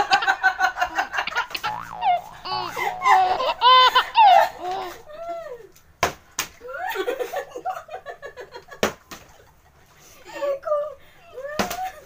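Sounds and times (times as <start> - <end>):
women laughing: 2.2 - 5.6.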